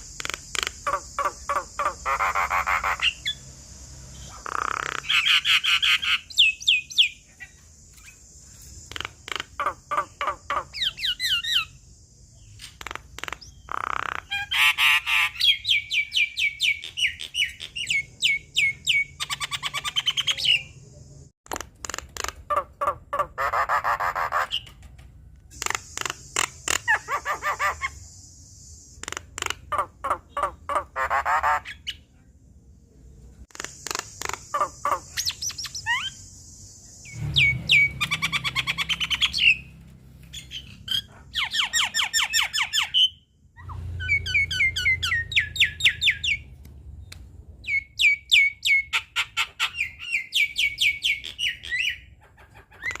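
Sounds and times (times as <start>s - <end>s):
myna calling: 0.1s - 3.4s, 33.5s - 36.2s.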